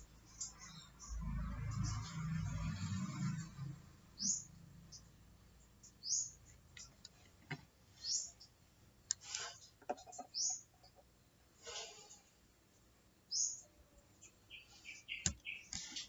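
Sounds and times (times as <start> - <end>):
bird chirping: 4.1 - 6.9, 8.0 - 8.6, 10.0 - 11.0, 13.3 - 16.0.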